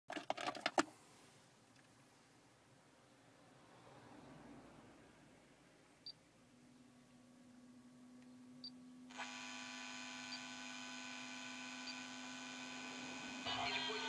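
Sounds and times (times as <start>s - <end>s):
electrical hum: 7.6s - 14.0s
buzzing whine: 9.1s - 14.0s.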